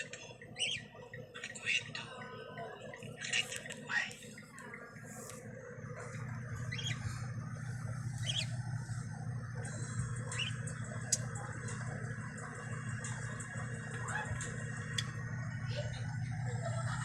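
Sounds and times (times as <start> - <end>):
steady low hum: 3.9 - 17.0
lovebirds chirping: 6.0 - 16.0.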